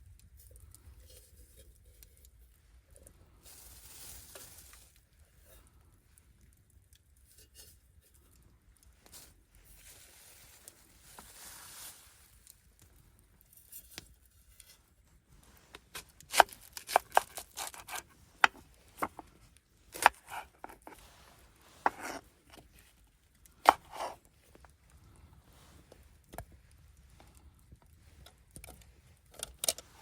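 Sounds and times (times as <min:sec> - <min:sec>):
sharp irregular clicks and knocks: 0:27.2 - 0:29.9.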